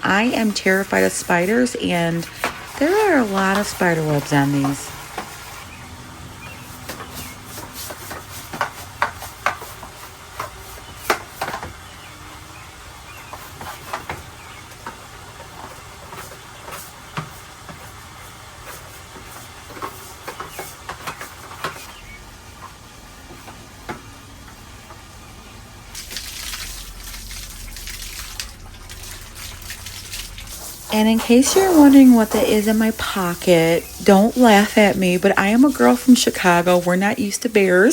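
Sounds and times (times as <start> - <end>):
scrubbing and scraping chairs: 0.0 - 11.8, 13.1 - 24.1, 25.9 - 37.9
hissing: 26.0 - 37.9.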